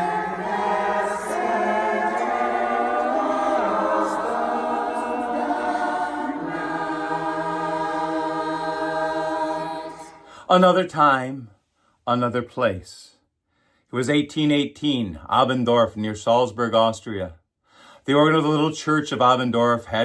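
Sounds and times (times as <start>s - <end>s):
barbershop chorus singing: 0.0s - 10.4s.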